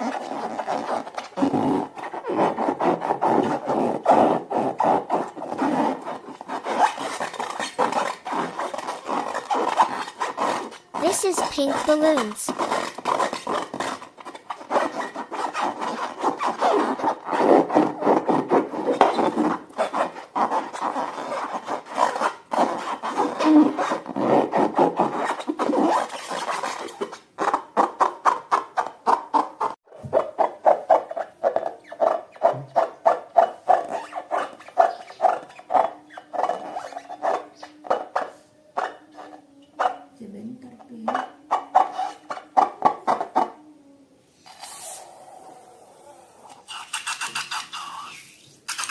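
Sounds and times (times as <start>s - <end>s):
slime squishing and stirring: 5.2s - 15.2s.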